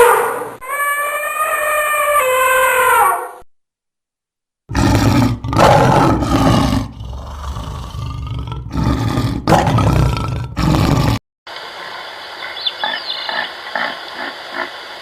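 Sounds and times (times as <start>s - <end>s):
wild animal roaring: 4.7s - 11.2s.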